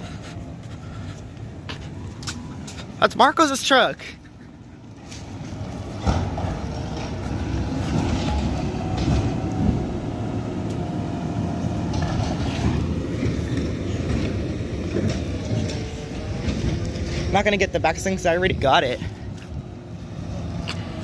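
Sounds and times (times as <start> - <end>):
garbage truck rumbling: 0.0 - 21.0.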